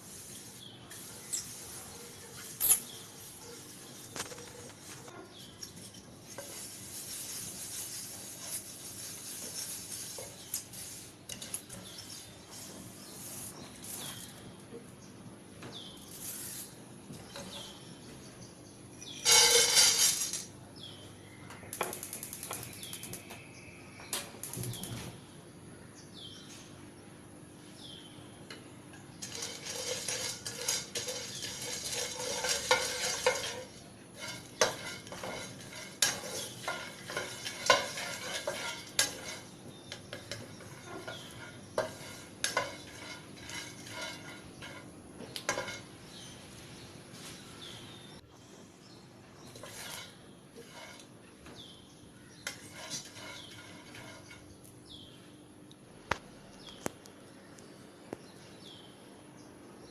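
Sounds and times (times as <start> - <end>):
seeds stir-frying in a pan: 0.0 - 2.6, 6.2 - 14.3, 29.2 - 46.2, 49.4 - 51.0, 52.4 - 54.4
spatula scraping a metal pan: 0.0 - 14.3, 19.2 - 20.4, 29.2 - 46.3, 49.4 - 51.1, 52.4 - 54.6.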